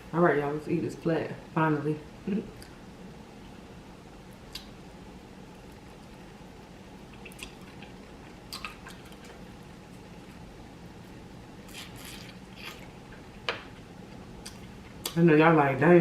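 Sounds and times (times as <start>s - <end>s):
faint steady hum: 0.0s - 16.0s
wet chewing and biting: 7.1s - 9.5s.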